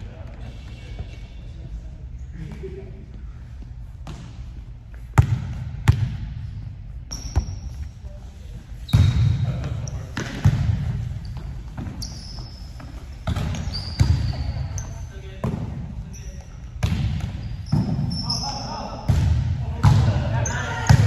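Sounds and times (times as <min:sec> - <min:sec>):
shoe squeaks on court: 0:07.1 - 0:08.1, 0:08.8 - 0:10.5, 0:11.1 - 0:15.2, 0:17.3 - 0:18.9.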